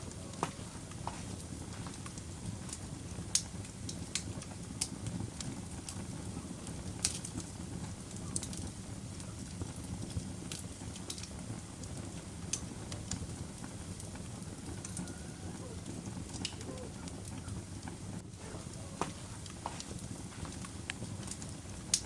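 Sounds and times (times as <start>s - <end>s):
fire low rumble: 0.0s - 22.0s
wood fire crackling and popping: 0.0s - 22.0s.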